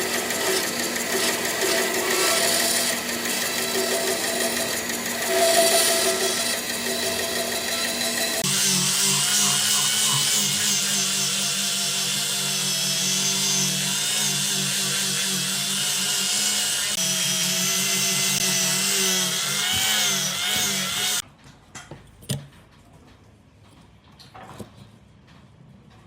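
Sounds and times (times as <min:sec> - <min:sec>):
power tool running on wood: 0:00.0 - 0:21.2.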